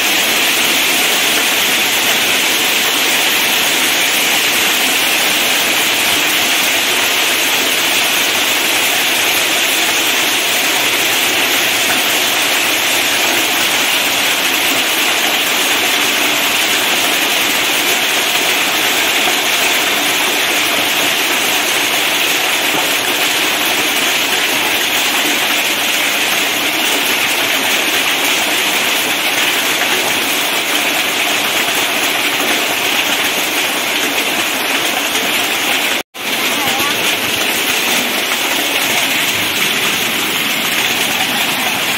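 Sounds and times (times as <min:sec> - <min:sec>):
heavy rain and hail: 0:00.0 - 0:41.9.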